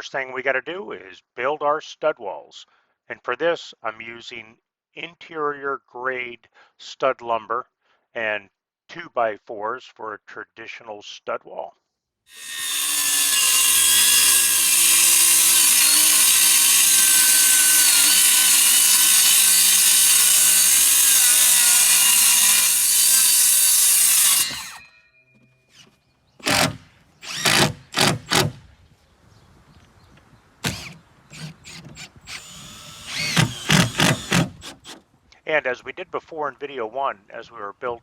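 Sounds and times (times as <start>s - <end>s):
power tool cutting lumber: 12.3s - 24.9s, 25.7s - 28.6s, 30.6s - 35.0s.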